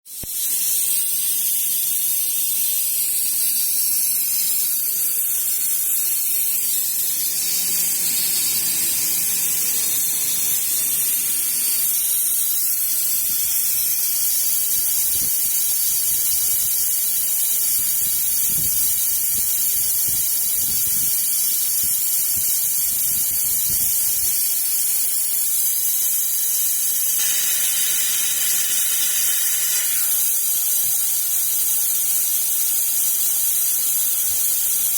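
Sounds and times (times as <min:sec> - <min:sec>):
glass drilling machine hiss: 0:00.1 - 0:33.0.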